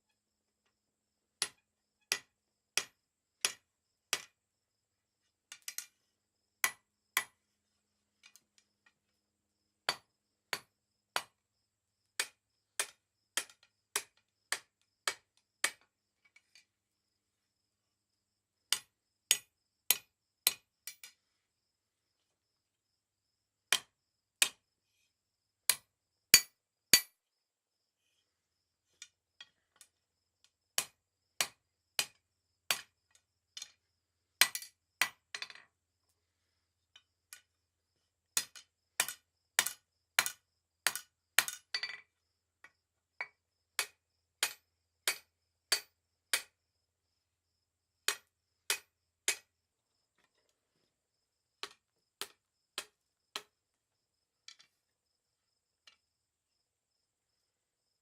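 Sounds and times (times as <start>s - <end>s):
hammer striking steel on anvil: 26.4s - 27.1s.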